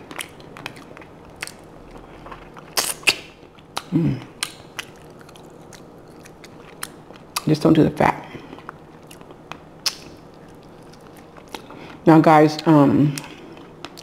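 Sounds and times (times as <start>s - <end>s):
wet chewing and mouth smacks: 0.0s - 7.5s, 8.4s - 11.8s, 13.2s - 14.0s
person humming: 3.9s - 4.3s.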